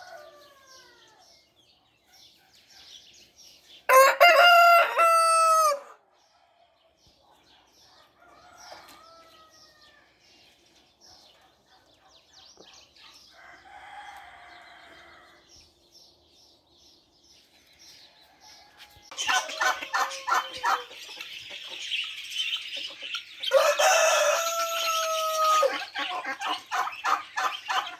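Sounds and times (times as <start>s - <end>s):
rooster crowing: 0.0s - 1.2s, 3.9s - 6.0s, 8.2s - 10.1s, 13.4s - 15.4s, 23.5s - 25.8s
small birds chirping: 0.0s - 4.1s, 6.1s - 27.9s.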